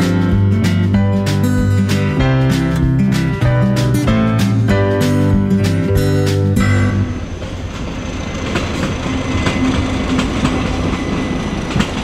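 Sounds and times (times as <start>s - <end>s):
train rumbling past: 0.0s - 12.0s
wheels clicking over rail joints: 5.0s - 12.0s.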